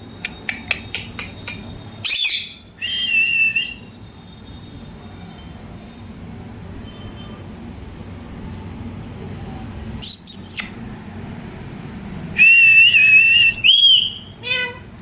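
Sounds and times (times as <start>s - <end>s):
parrot whistling: 0.1s - 3.9s, 10.0s - 10.8s, 12.4s - 14.6s
parrot screeching: 2.0s - 2.6s, 10.0s - 10.8s, 13.7s - 14.8s.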